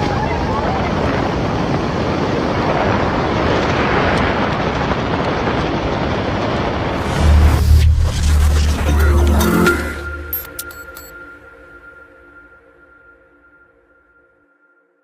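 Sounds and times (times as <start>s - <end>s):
roar of storm wind: 0.0s - 9.8s
deep bass music: 7.0s - 12.2s.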